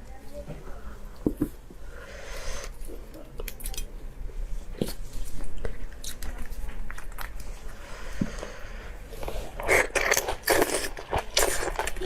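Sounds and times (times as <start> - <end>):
person biting and chewing: 9.2 - 12.0.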